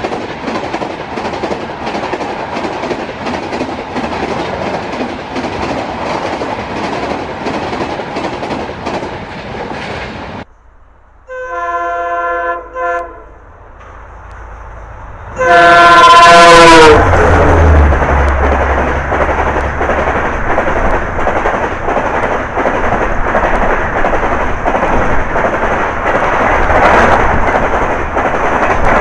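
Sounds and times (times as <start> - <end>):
train wheels clattering over rail joints: 0.0 - 10.4, 17.6 - 29.0
loud train horn blast: 11.2 - 13.5, 15.2 - 17.9
train horn: 11.2 - 13.5, 15.3 - 17.9.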